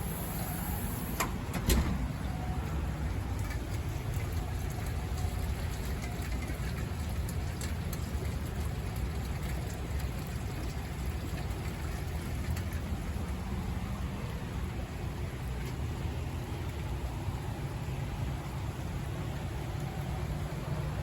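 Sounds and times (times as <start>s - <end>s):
raindrops ticking: 2.6s - 13.2s.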